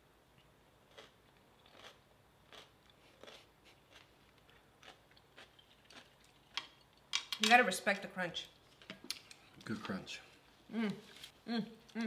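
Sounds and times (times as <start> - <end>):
cucumber crunching while chewed: 0.9 - 6.6.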